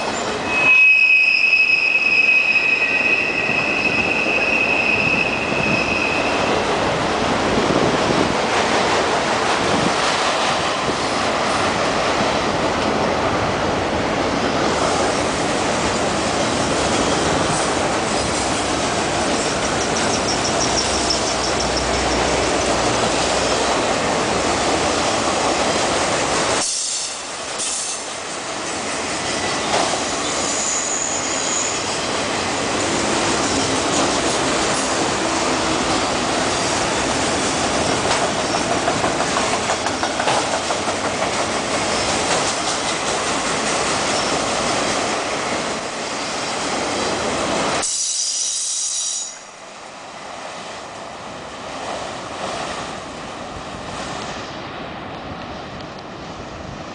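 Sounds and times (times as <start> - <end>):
high-pitched wheel squeal: 0.4 - 6.6, 30.4 - 31.8
freight cars rumbling and rattling: 5.6 - 26.6, 31.8 - 46.0.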